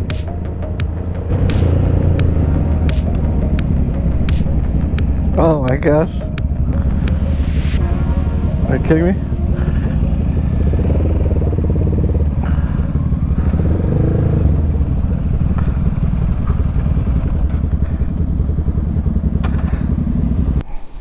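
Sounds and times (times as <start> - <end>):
motorcycle engine running: 0.0 - 20.6.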